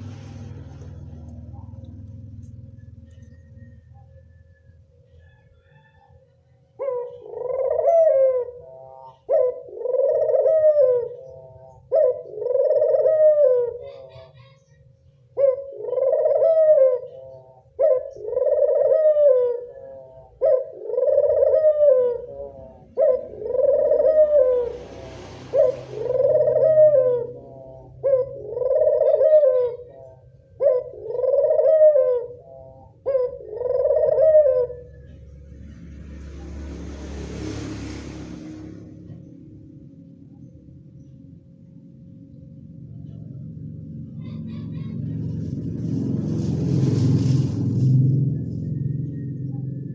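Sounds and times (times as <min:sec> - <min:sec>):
dove cooing: 0:00.0 - 0:36.8, 0:38.4 - 0:49.9.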